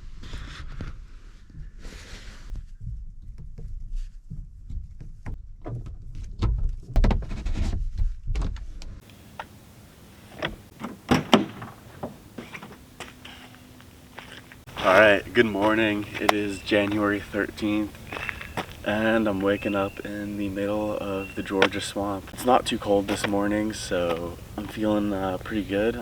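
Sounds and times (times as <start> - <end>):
low rumble: 0.4 - 7.0
clicks knocks and thuds: 10.3 - 13.2.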